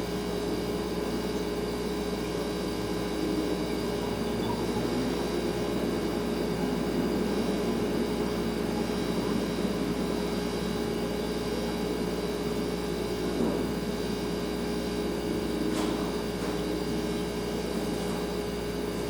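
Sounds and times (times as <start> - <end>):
refrigerator humming: 0.0 - 19.0.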